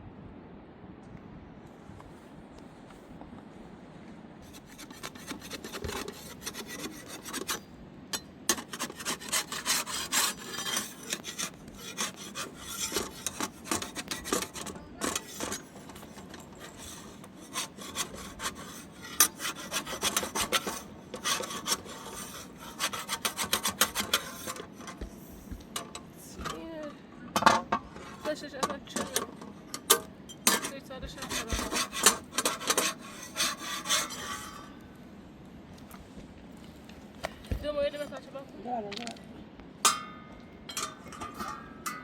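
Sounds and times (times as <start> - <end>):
rasping scraping by hand: 4.4 - 26.8, 27.4 - 34.8.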